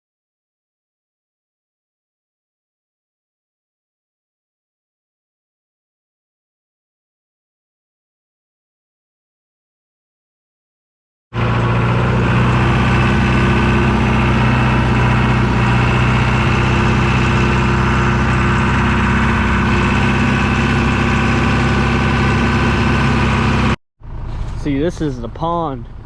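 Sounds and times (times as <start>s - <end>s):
tractor engine running: 11.4s - 26.0s.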